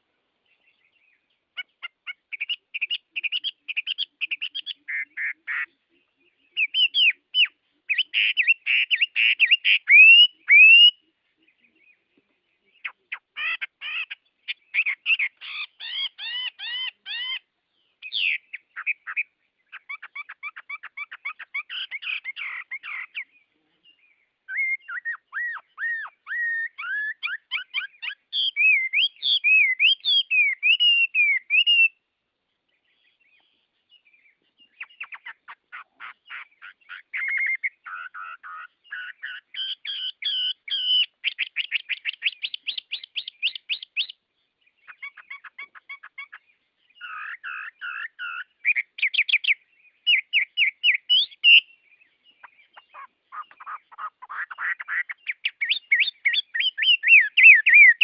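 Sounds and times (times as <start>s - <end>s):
bird chirping trills: 0.0s - 58.0s
bird whistled warbling: 54.4s - 58.0s.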